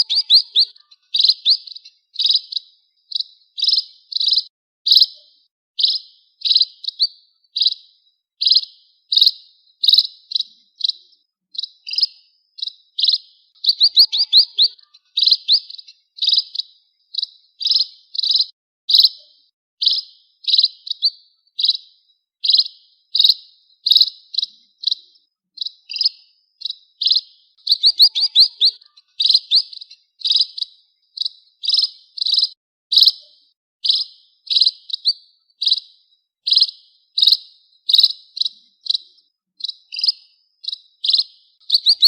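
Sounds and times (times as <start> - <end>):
small bird chirping: 0.0 - 42.0.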